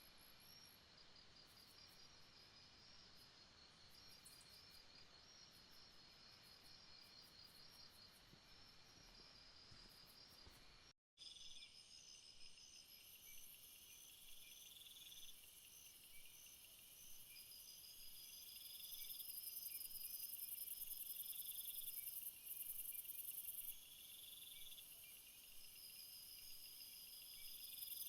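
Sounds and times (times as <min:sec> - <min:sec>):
insect chirp trains: 0:00.0 - 0:28.0
insect trill: 0:11.2 - 0:28.0.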